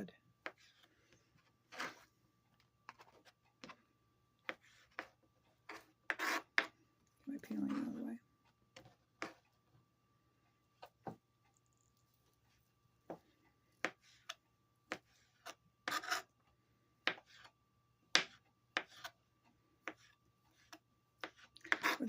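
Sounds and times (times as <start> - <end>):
knife scraping on cutting board: 1.7 - 2.1, 5.7 - 6.7, 13.8 - 16.3, 20.5 - 22.0.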